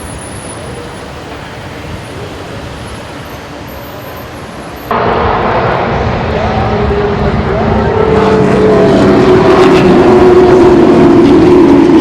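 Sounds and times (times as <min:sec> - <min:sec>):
loud engine drone: 0:04.6 - 0:12.0.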